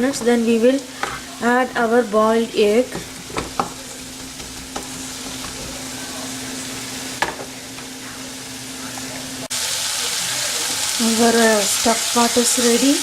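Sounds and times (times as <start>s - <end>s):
food sizzling in a frying pan: 0.0s - 13.0s
spoon knocking in a pan: 2.9s - 5.8s.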